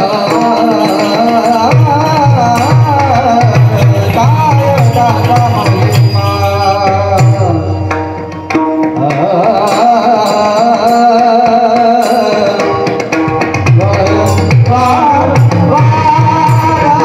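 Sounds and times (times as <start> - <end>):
person singing devotional song: 0.0 - 7.9, 9.0 - 17.0
hand drum: 0.0 - 17.0.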